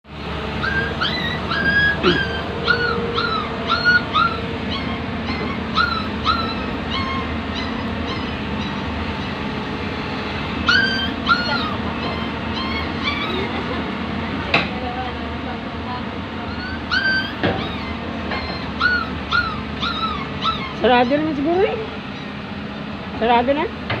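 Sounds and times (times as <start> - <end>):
low engine drone: 0.0 - 24.0
animal whining cries: 0.4 - 9.8, 10.6 - 14.0, 16.4 - 22.4.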